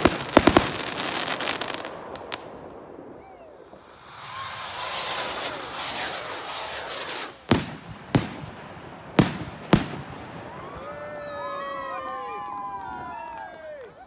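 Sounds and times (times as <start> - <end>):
firework bangs: 0.0 - 11.2
fireworks crackling: 0.0 - 13.9
falling pitched whistling tones: 3.0 - 7.5.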